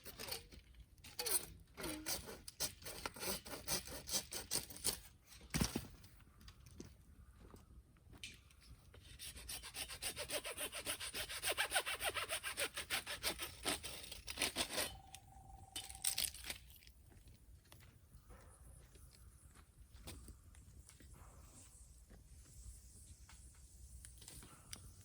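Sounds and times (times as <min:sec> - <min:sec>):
hand saw cutting bamboo: 0:01.3 - 0:05.0, 0:09.0 - 0:15.0
steady single-pitched tone: 0:14.9 - 0:16.2.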